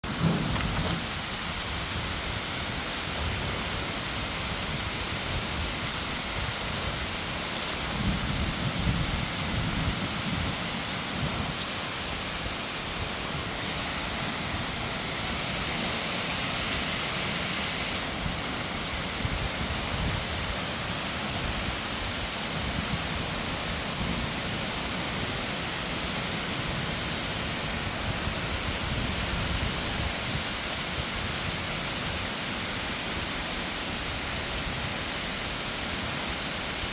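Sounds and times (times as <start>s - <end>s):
low thunder rumble: 0.0s - 5.6s
steady rain pouring: 0.0s - 36.9s.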